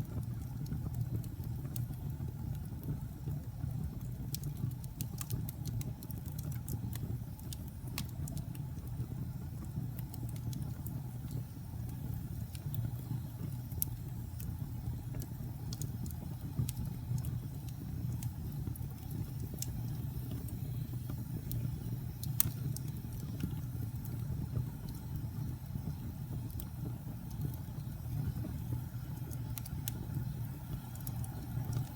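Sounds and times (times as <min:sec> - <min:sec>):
fire crackling and popping: 0:00.0 - 0:31.9
fire rumbling in fireplace: 0:00.0 - 0:31.9.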